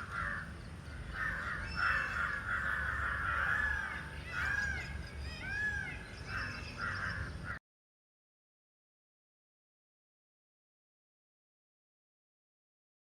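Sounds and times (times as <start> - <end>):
harsh bird calls: 0.0 - 7.6.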